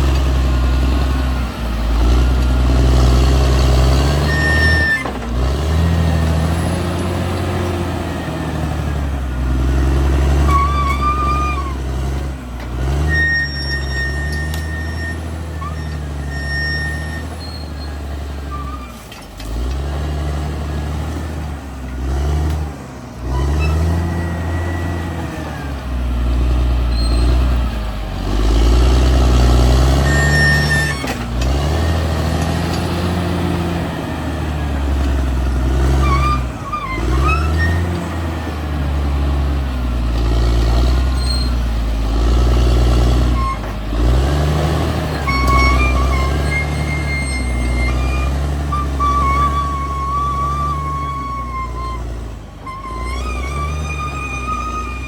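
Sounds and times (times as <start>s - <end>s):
bulldozer diesel engine under load: 0.0s - 55.0s
brief high squeaks: 4.2s - 5.2s, 10.4s - 11.8s, 13.0s - 19.2s, 23.3s - 25.8s, 26.9s - 27.6s, 29.9s - 31.2s, 36.0s - 38.1s, 41.2s - 41.6s, 45.1s - 55.0s.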